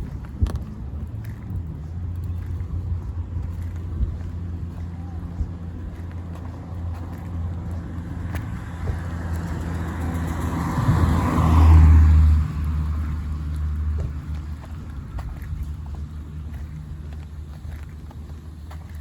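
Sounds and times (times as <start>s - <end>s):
steady low rumble: 0.0s - 19.0s
car passing on wet road: 8.5s - 14.4s.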